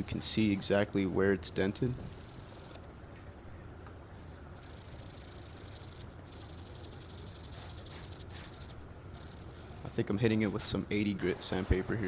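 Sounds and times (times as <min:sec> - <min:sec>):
sandpaper rubbing on plastic: 0:07.2 - 0:08.8.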